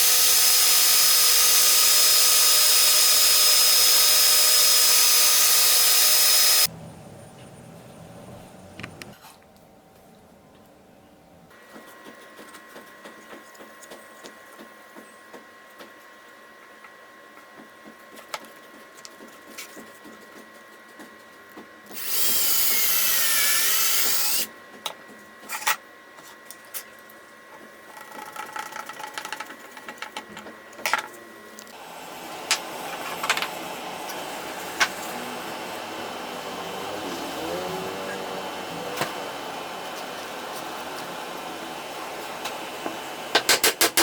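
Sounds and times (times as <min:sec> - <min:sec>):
power tool whining: 0:00.0 - 0:06.7, 0:21.9 - 0:24.5, 0:31.8 - 0:43.4.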